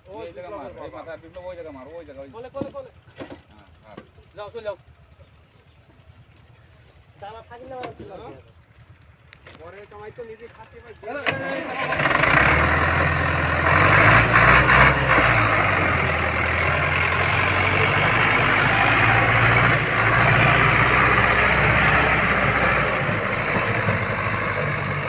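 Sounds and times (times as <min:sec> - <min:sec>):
tractor diesel engine running: 0:08.4 - 0:25.0.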